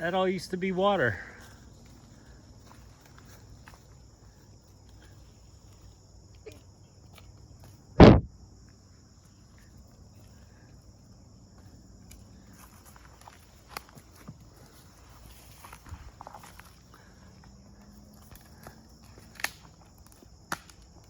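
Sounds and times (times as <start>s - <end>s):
insects chirring: 0.0s - 21.0s
faint footsteps: 1.1s - 6.0s, 11.4s - 19.5s.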